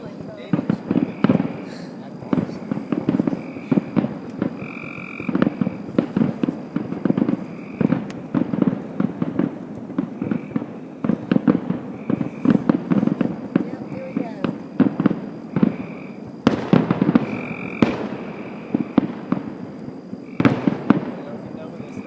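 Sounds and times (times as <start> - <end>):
fireworks bangs and crackles: 0.0 - 22.0
bullfrog croaking: 0.6 - 8.2, 10.0 - 16.4, 17.0 - 19.0, 20.1 - 20.8.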